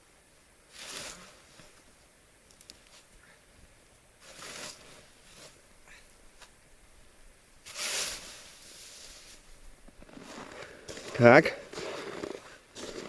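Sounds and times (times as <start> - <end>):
shovel scraping through snow: 0.7 - 1.8, 4.2 - 5.6, 7.6 - 9.5, 10.1 - 13.0.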